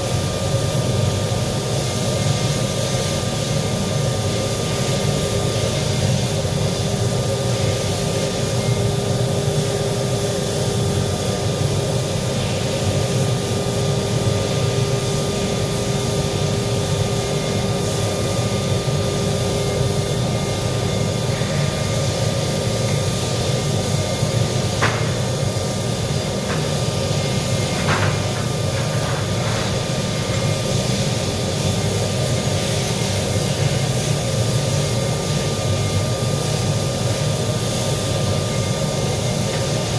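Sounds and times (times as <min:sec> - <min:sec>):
machine drone with low rumble: 0:00.0 - 0:39.9
sharp knocks: 0:24.8 - 0:25.2.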